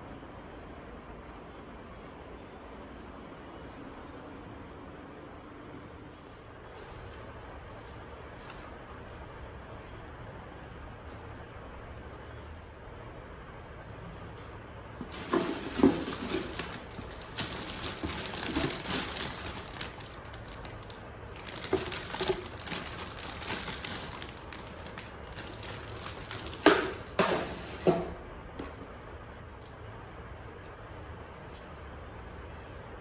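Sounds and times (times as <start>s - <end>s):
objects rustling: 15.0s - 28.2s.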